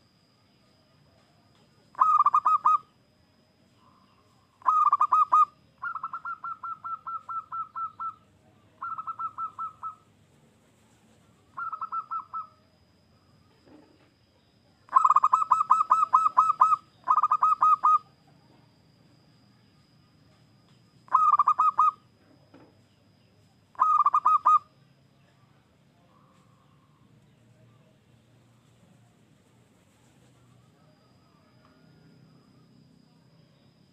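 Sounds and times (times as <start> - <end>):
dove cooing: 1.9 - 2.9, 3.8 - 10.1, 11.4 - 12.6, 14.9 - 18.8, 21.1 - 22.1, 23.7 - 24.7.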